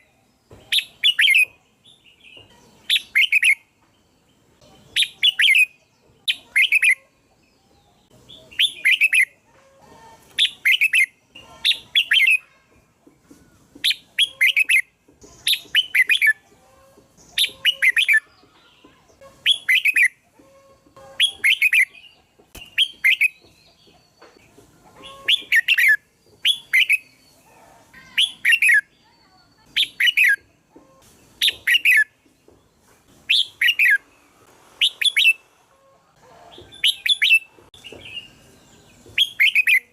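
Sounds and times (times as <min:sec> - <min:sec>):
bird singing short phrases: 0:28.0 - 0:30.4.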